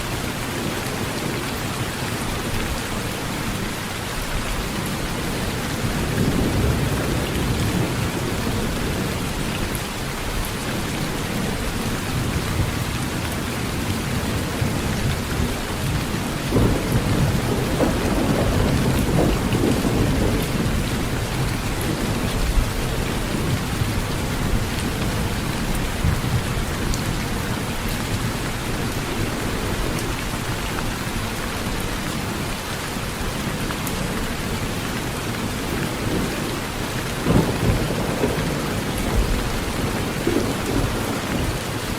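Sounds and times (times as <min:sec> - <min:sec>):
heavy rain on a tin roof: 0:00.0 - 0:41.9
low thunder rumbling: 0:05.3 - 0:09.8, 0:10.9 - 0:30.1, 0:37.1 - 0:41.8.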